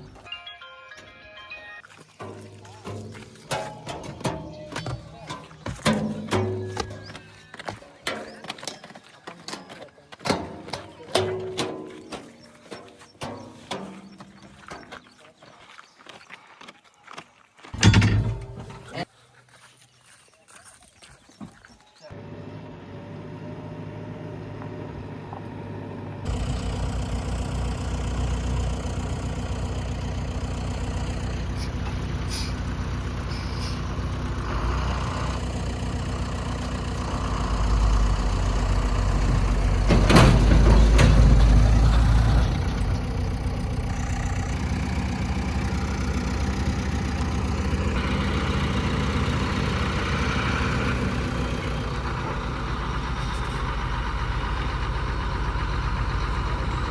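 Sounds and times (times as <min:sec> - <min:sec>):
diesel engine running: 0:02.2 - 0:08.4, 0:22.1 - 0:56.9.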